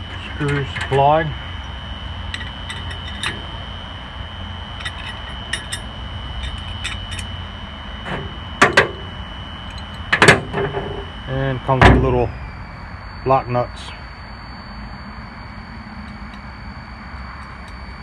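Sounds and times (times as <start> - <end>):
metal screws clinking: 2.3 - 3.4, 4.8 - 7.3.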